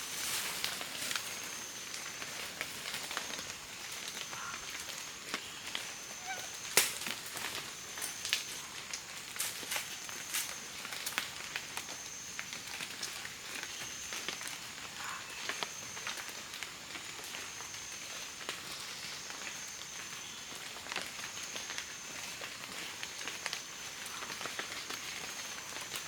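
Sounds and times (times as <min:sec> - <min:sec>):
wood fire crackling: 0:00.0 - 0:26.0
sharp pops from fire: 0:00.6 - 0:14.5.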